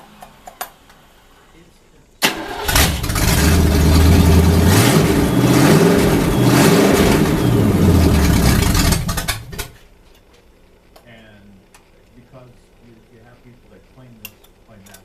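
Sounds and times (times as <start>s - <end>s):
car engine cranking and starting: 2.2s - 9.8s
engine revving: 2.4s - 9.7s
engine sputtering: 2.4s - 9.8s.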